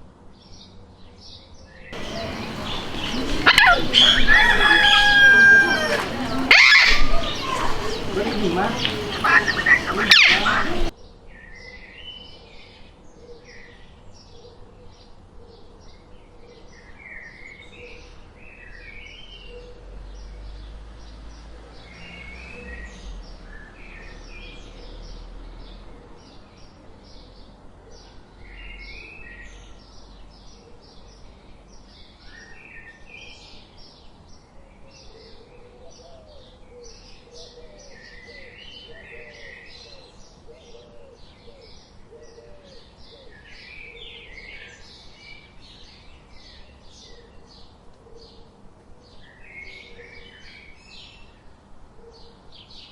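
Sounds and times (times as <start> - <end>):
birds chirping: 2.0 - 10.9.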